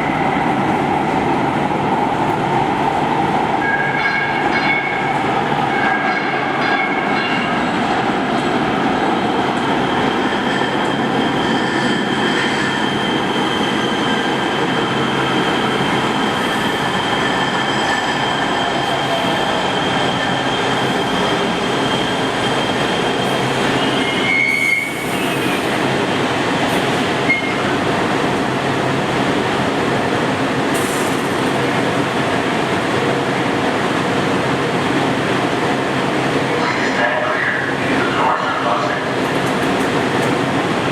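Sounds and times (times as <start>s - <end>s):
train wheels rumbling on rail: 0.0s - 40.9s
high wheel squeal: 9.8s - 25.7s.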